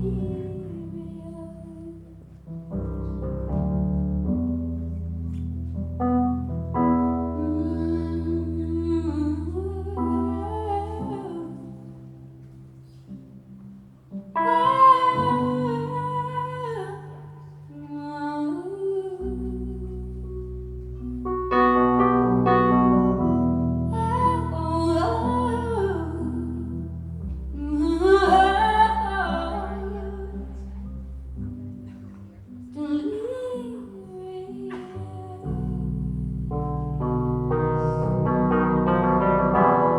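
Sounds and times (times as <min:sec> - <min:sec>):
woman singing: 0:00.0 - 0:02.2, 0:07.3 - 0:12.2, 0:14.4 - 0:20.6, 0:23.0 - 0:30.9, 0:32.7 - 0:38.8
keyboard and bass chords: 0:20.1 - 0:29.9, 0:35.7 - 0:39.9.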